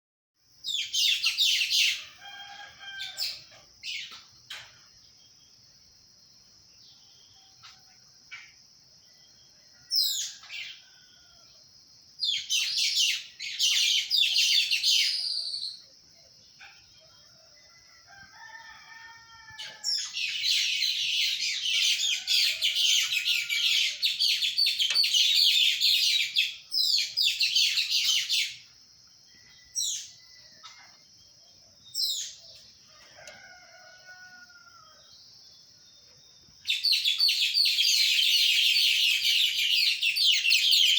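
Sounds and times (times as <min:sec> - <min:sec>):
distant rooster crowing: 0:01.7 - 0:03.6, 0:09.3 - 0:11.6, 0:16.9 - 0:25.9, 0:32.8 - 0:35.2
birds chirping and chattering: 0:19.5 - 0:28.8, 0:36.0 - 0:40.9.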